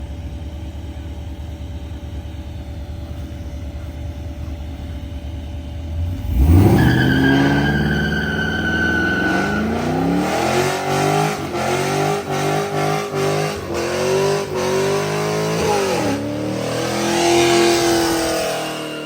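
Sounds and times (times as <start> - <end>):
car exhaust rumbling and revving: 0.0 - 19.0
high-pitched tyre squeal: 6.1 - 16.3, 16.9 - 19.0.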